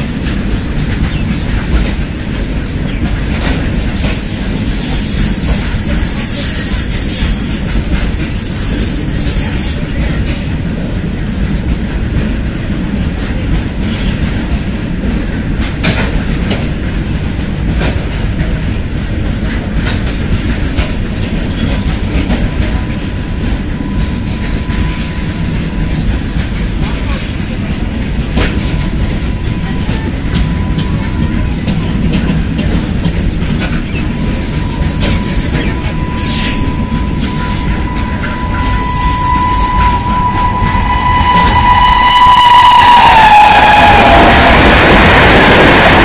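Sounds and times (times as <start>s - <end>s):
wheels clacking over rail joints: 0.0s - 42.3s
freight train rumbling past: 0.0s - 46.0s
high-pitched squeal: 33.8s - 46.0s.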